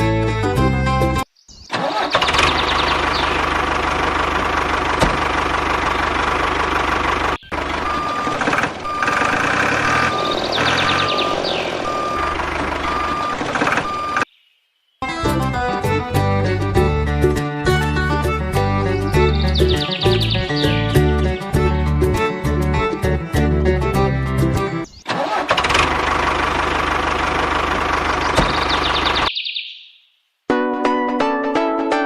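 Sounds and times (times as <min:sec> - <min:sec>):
vehicle engine running: 0:02.2 - 0:14.3, 0:15.9 - 0:29.3
reversing alarm beeping: 0:07.4 - 0:14.3.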